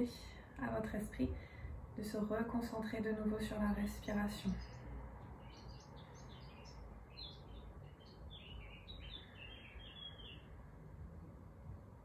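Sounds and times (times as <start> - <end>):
low room hum: 0.0 - 12.0
songbird chirping: 2.6 - 10.8.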